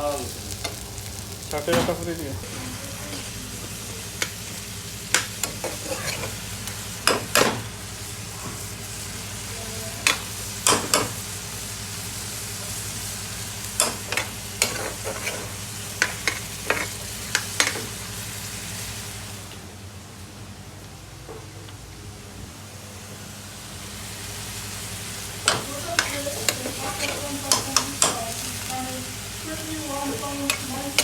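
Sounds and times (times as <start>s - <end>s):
food sizzling in a pan: 0.0s - 19.5s, 22.6s - 31.0s
low kitchen hum: 0.0s - 31.0s
metal utensil clanking on pan: 25.4s - 28.3s.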